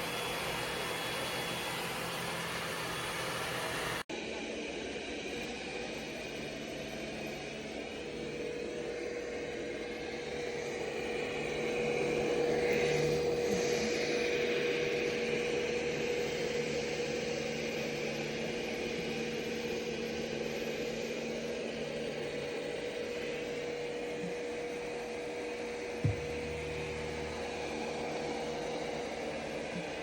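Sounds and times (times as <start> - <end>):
robot vacuum motor hum: 0.0 - 4.0, 5.6 - 30.0
short knock: 26.0 - 26.4.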